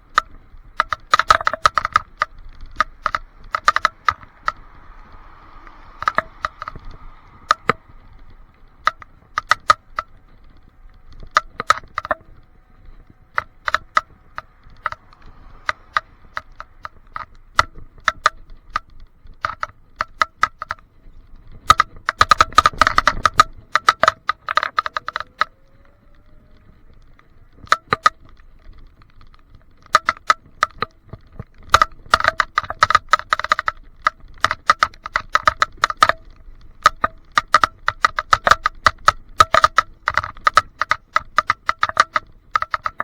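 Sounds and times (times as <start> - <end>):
plastic camera case rattling: 0.0 - 43.0.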